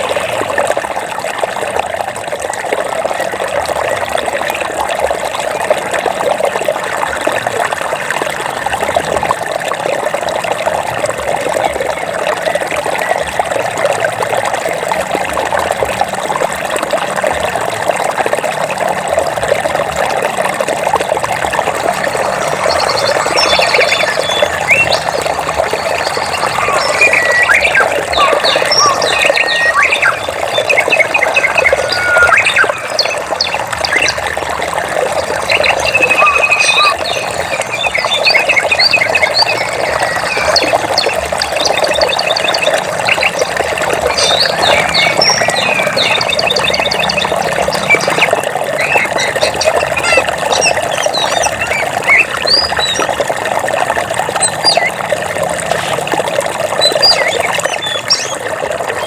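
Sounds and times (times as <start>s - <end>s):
flowing water rushing: 0.0s - 59.0s
birds chirping and trilling: 21.9s - 53.2s, 54.4s - 55.0s, 56.7s - 59.0s.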